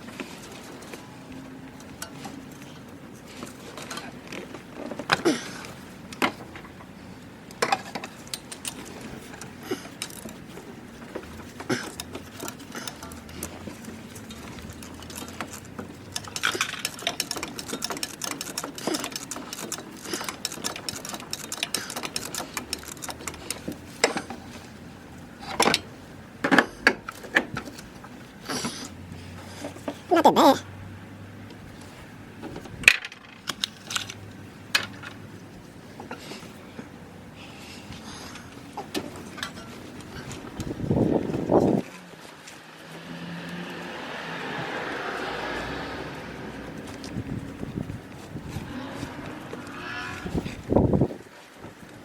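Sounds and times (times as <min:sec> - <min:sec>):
metal hand tools clinking: 0:07.6 - 0:24.4.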